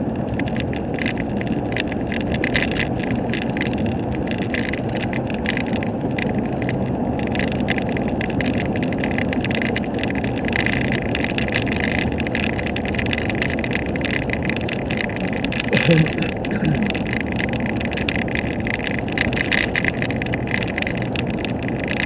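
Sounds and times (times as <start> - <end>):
rapid crackling hiss: 0.0 - 22.0
vehicle engine and road noise: 0.0 - 22.0.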